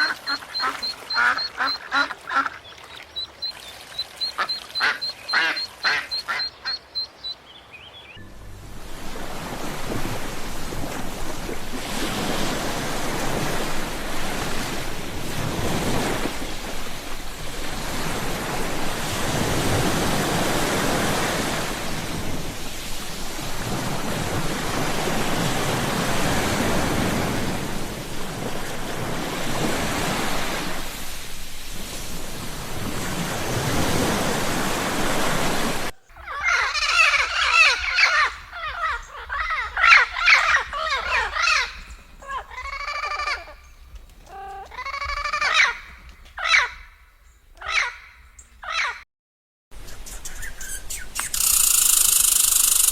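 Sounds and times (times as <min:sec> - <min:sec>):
ocean waves washing in: 0:00.0 - 0:07.4, 0:08.2 - 0:36.0, 0:51.2 - 0:52.9
crow cawing: 0:36.2 - 0:43.6, 0:44.2 - 0:46.9.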